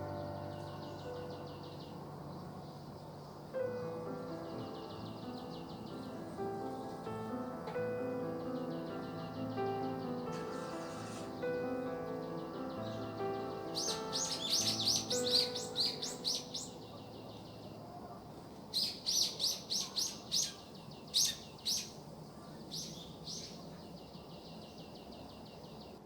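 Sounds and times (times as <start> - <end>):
soft background music: 0.0 - 17.8
small bird chirping: 0.0 - 26.0.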